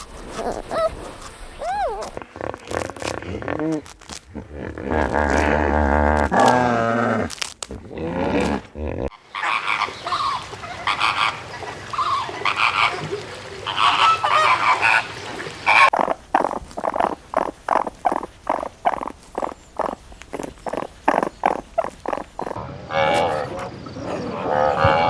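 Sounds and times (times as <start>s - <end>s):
waterfowl sliding call: 0.0s - 4.2s, 4.8s - 8.6s, 9.4s - 23.7s, 24.5s - 25.0s
geese honking: 13.6s - 23.7s, 24.4s - 25.0s.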